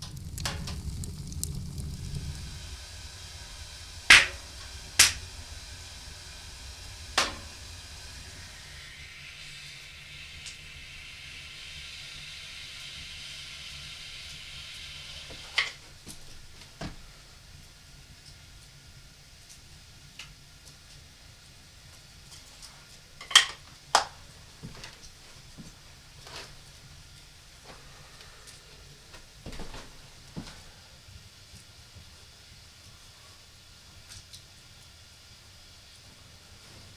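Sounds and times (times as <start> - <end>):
low rumble: 0.0 - 14.5
faint steady hiss: 0.0 - 36.9.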